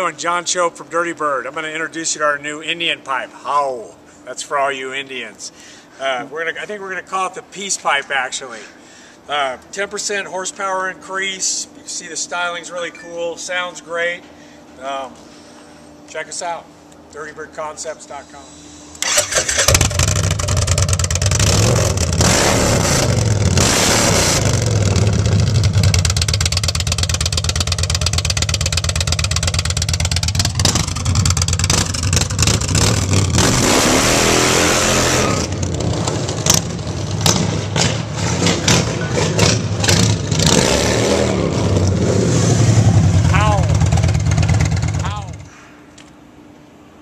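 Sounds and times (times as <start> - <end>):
motorcycle engine revving and idling: 19.0 - 45.5.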